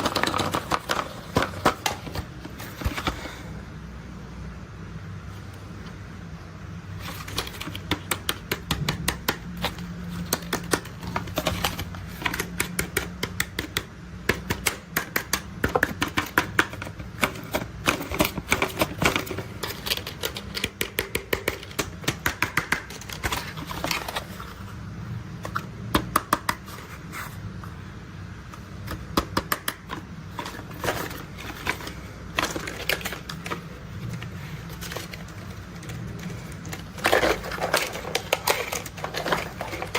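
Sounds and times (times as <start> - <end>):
toy vehicles clicking and clattering: 0.0 - 3.2, 7.0 - 24.5, 28.9 - 39.9
low steady hum: 0.0 - 39.9.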